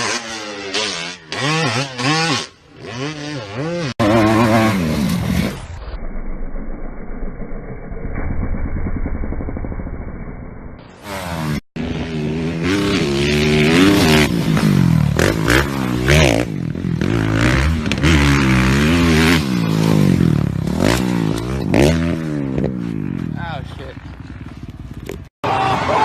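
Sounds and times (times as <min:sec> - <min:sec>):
motocross bike engine revving: 0:00.0 - 0:05.9, 0:10.8 - 0:25.3.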